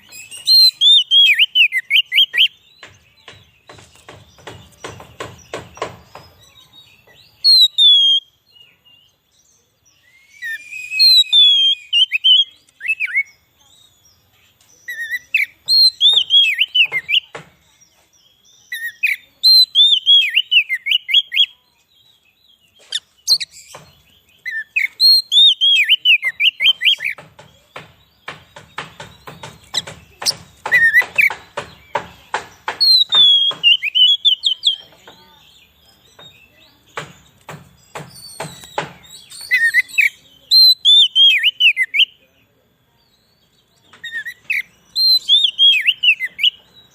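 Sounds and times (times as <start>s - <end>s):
bird whistled song: 0.0s - 14.1s, 14.8s - 42.3s, 43.1s - 46.9s
bird rapid ticking notes: 22.9s - 35.3s.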